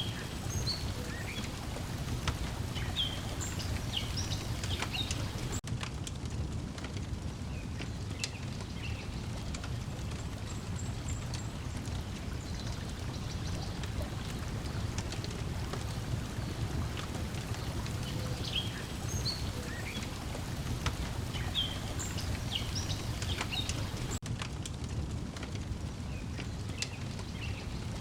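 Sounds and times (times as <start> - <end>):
bird chirps: 0.0 - 5.6, 17.5 - 24.2
breeze: 0.0 - 5.6, 7.6 - 24.2
water lapping: 0.0 - 5.6, 8.8 - 24.2.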